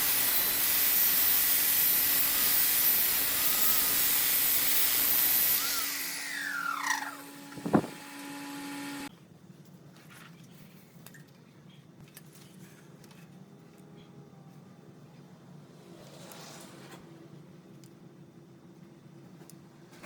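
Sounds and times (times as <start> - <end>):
lathe tool hissing on wood: 0.0 - 9.1
low motor hum: 5.8 - 9.1.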